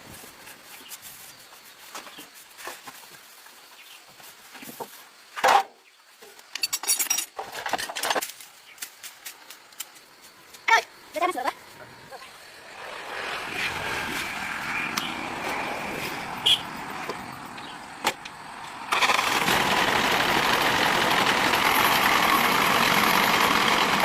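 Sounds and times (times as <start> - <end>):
truck engine running: 12.7 - 24.0.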